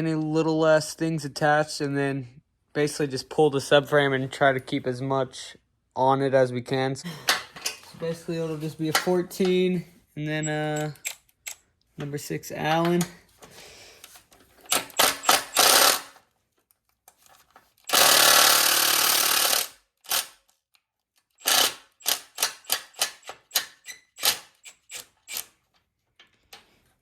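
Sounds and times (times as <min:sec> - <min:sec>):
bolts clicking and knocking: 0:08.8 - 0:09.7, 0:10.4 - 0:13.2.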